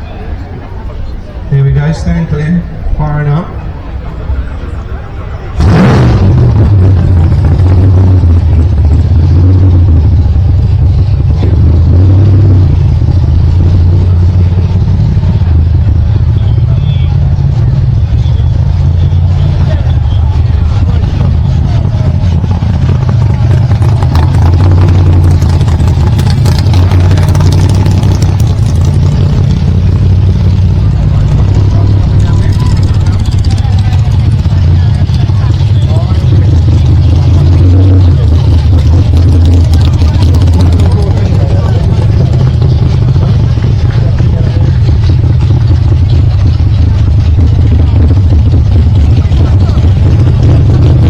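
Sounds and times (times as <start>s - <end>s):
engine starting and idling: 17.5s - 51.0s.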